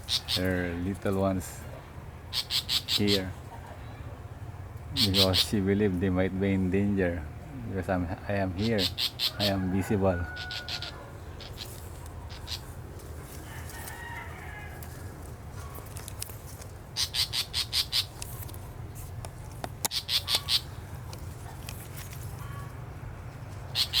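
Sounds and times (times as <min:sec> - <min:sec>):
bird alarm calls: 0:00.0 - 0:00.8, 0:02.3 - 0:03.4, 0:04.9 - 0:05.7, 0:08.5 - 0:09.7, 0:10.3 - 0:12.8, 0:17.0 - 0:18.5, 0:19.8 - 0:20.8, 0:23.7 - 0:24.0.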